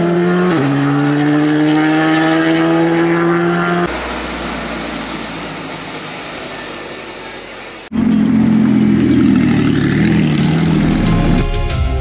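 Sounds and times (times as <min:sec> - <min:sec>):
race car engine at full throttle: 0:00.0 - 0:12.0.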